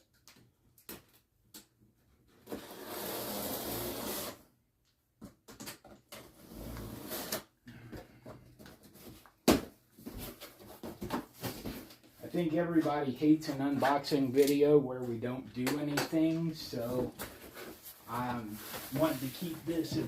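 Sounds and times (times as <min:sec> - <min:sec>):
packaging scraping and rustling: 0:16.8 - 0:20.0.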